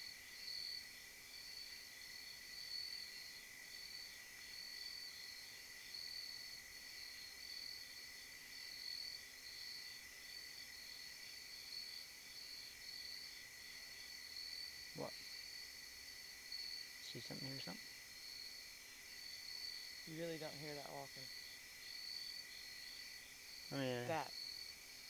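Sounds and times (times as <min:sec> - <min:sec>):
crickets trilling: 0:00.0 - 0:07.9, 0:08.6 - 0:25.0
pulsing high insect trill: 0:19.1 - 0:24.8.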